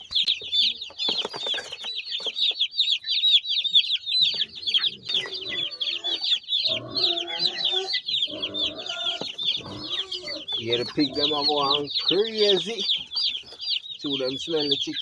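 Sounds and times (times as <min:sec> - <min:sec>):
chicks peeping: 0:00.0 - 0:15.0
pigs squealing and grunting: 0:04.8 - 0:11.5.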